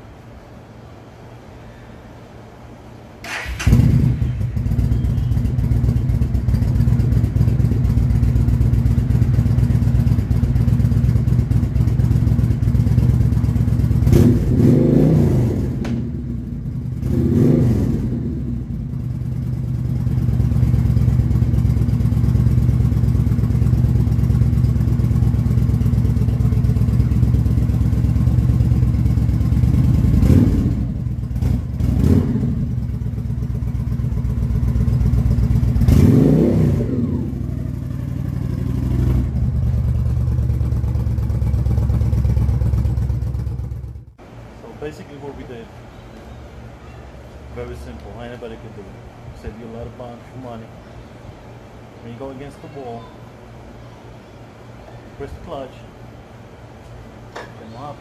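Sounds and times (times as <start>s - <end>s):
motorcycle engine starting and idling: 3.2s - 44.2s
throttle revs: 35.7s - 39.5s.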